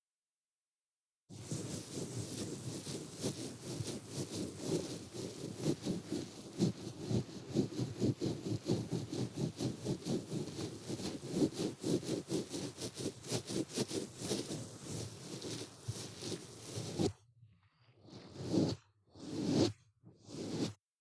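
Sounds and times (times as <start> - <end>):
ear pick scraping inside ear: 13.2 - 17.2, 18.0 - 20.8.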